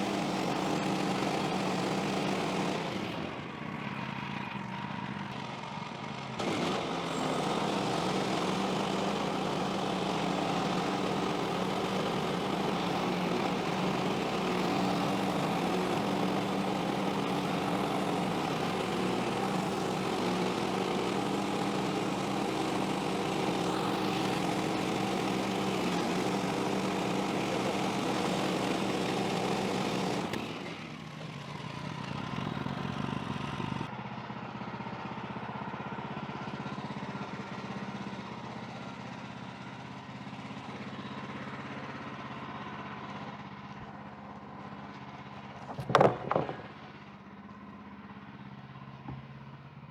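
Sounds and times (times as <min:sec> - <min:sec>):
band saw cutting a log: 0:00.0 - 0:03.6, 0:06.4 - 0:31.0, 0:45.5 - 0:47.0
sawmill engine running: 0:00.0 - 0:49.9.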